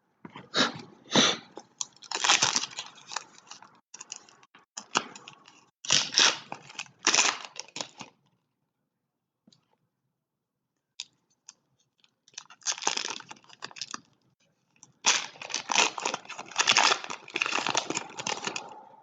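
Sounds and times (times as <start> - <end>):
foil wrappers torn and crinkled: 1.8 - 8.2, 12.3 - 14.1, 15.0 - 18.8.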